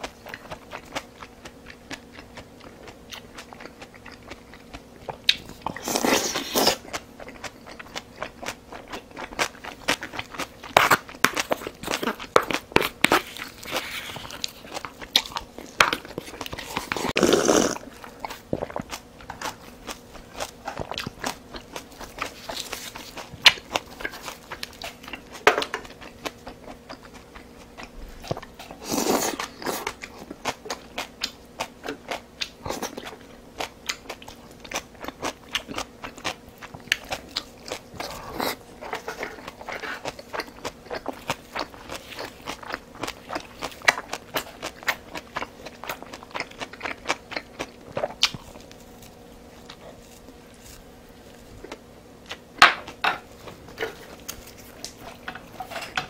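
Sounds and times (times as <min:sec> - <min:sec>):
close chewing and crunching: 0:00.0 - 0:56.0
loud mouth sound: 0:17.1 - 0:17.9.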